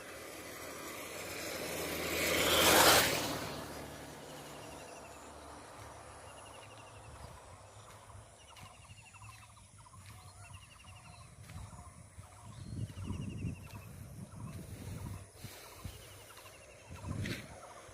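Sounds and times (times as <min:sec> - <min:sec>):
birds chattering: 0:03.9 - 0:17.9.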